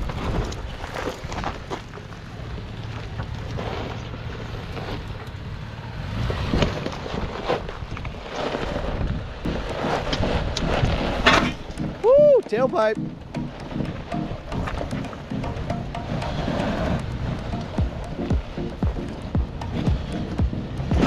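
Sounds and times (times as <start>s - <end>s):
tyres crunching on rocks: 0.0s - 5.4s
truck engine running under load: 1.6s - 12.0s, 13.0s - 21.0s.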